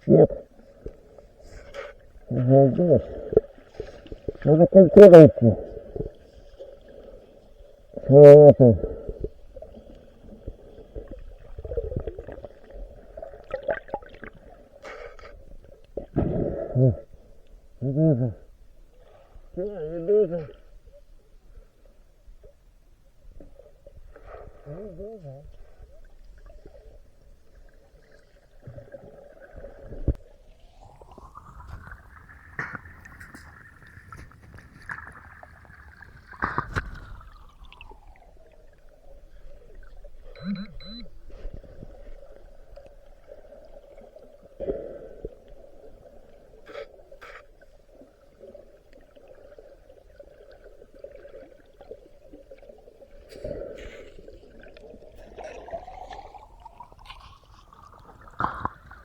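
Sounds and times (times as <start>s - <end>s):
muffled water gurgling: 23.5s - 59.0s
metal detector tone: 40.4s - 41.1s.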